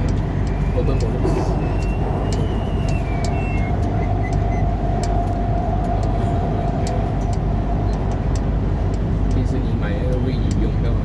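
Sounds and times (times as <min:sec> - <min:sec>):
train motor whine: 0:00.0 - 0:08.7
train wheels rumbling on track: 0:00.0 - 0:11.0.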